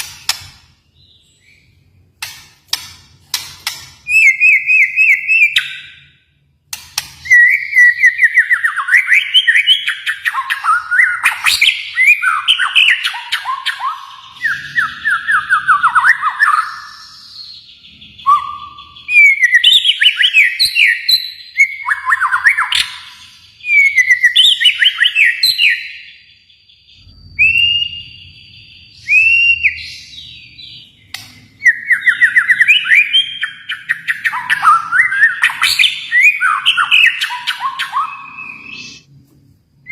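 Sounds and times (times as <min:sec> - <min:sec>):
bird singing whistled phrases: 0:04.0 - 0:06.1, 0:07.2 - 0:39.1.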